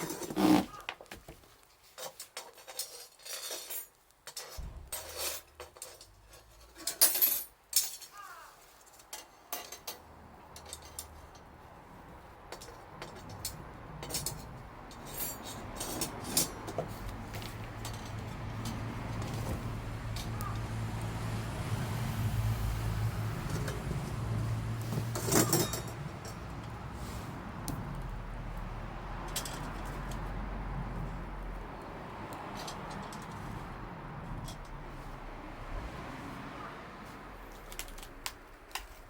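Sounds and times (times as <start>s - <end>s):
low vehicle rumble: 10.0s - 39.0s
metal cookware clinking: 25.2s - 26.5s.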